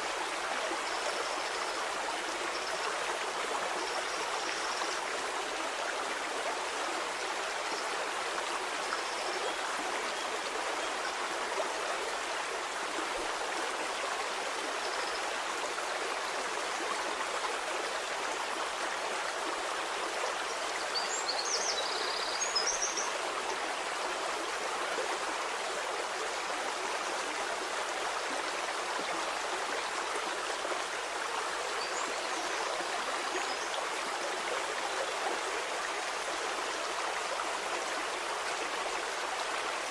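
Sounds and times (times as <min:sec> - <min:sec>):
stream of flowing water: 0:00.0 - 0:39.9.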